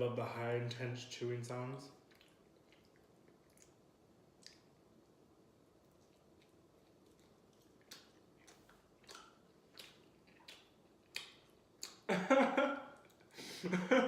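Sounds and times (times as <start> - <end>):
chewing pizza: 2.0 - 4.8, 5.8 - 12.1
wet mouth clicks: 2.1 - 3.8, 4.4 - 4.7, 6.0 - 12.1.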